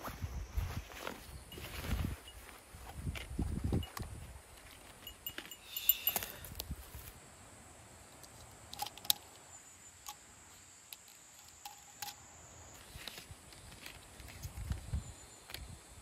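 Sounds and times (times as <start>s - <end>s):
light clicks and clinks: 4.8s - 6.7s, 10.9s - 12.2s
insect high-pitched trill: 4.9s - 6.6s, 9.0s - 13.0s.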